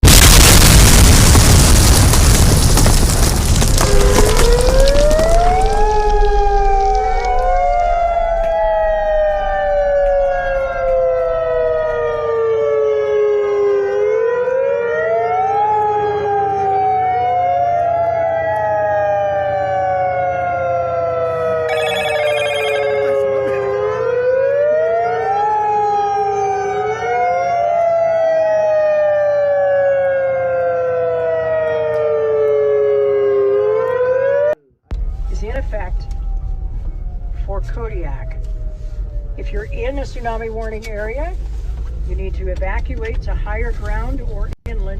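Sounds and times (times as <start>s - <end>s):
warning siren wailing: 3.5s - 41.4s.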